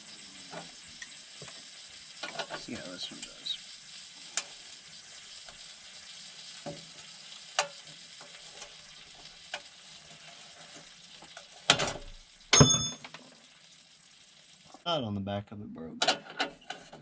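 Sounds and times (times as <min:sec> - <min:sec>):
sharp welding pops: 0:00.0 - 0:09.8, 0:10.7 - 0:13.8
arc welding crackle: 0:00.0 - 0:14.9.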